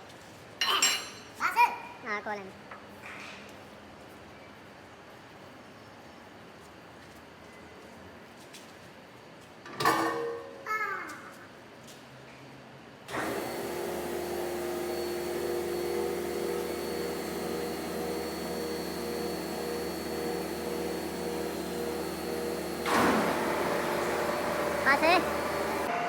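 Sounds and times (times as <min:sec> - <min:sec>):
workshop machine humming and whining: 0:13.1 - 0:26.0.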